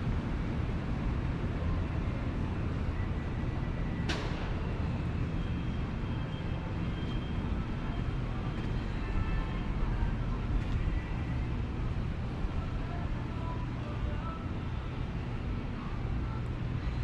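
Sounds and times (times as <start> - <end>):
street traffic rumbling: 0.0 - 17.0.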